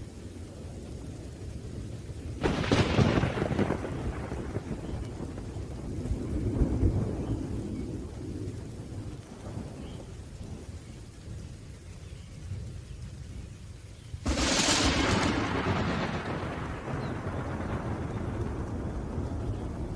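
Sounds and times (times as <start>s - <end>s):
thunder rumbling: 0.0s - 13.6s, 14.2s - 19.9s
steady rain: 0.0s - 19.9s.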